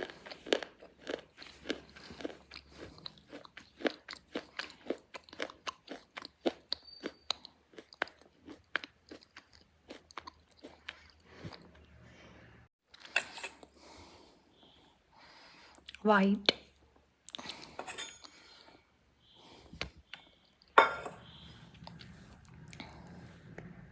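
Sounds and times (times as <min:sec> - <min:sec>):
pencil being chewed with crunches: 0:00.0 - 0:11.8.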